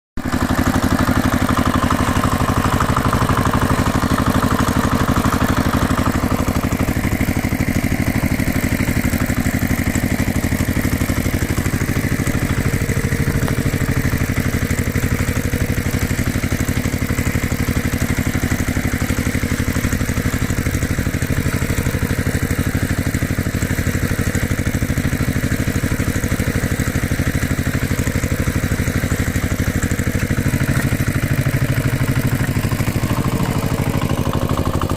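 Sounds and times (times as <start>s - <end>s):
engine idling: 0.2s - 34.9s.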